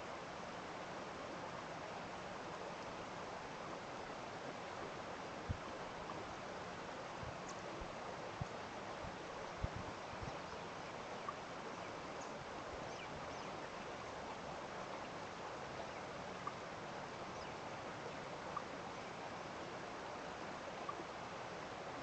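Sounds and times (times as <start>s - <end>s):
rushing water: 0.0s - 22.0s
wind: 0.0s - 22.0s
faint bird chirps: 7.3s - 7.7s, 9.5s - 14.2s.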